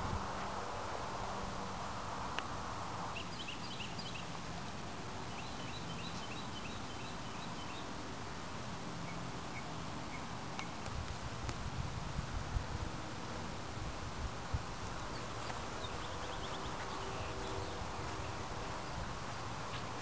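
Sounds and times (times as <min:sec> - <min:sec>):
steady background hiss: 0:00.0 - 0:20.0
small birds chirping: 0:03.1 - 0:08.0, 0:08.9 - 0:11.0, 0:14.4 - 0:20.0.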